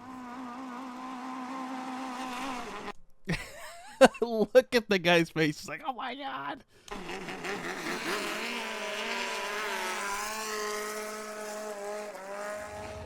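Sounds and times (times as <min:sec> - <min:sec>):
boat engine at high revs: 0:00.0 - 0:02.9, 0:06.8 - 0:13.0.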